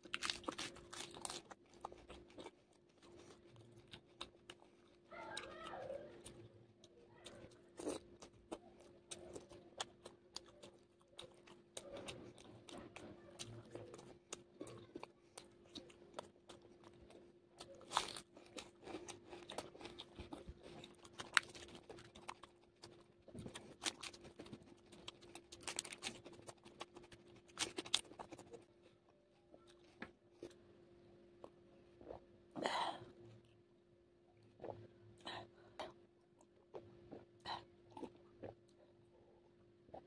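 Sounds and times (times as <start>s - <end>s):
crunching bites: 0.0s - 4.7s, 15.7s - 28.6s
wet chewing with mouth clicks: 0.0s - 30.6s, 34.3s - 39.1s
faint steady hum: 0.0s - 40.0s.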